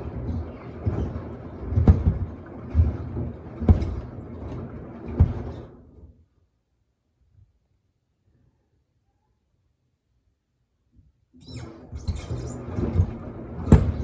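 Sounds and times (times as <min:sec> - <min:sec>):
washer-dryer drum tumbling: 0:00.0 - 0:06.1, 0:11.6 - 0:14.0.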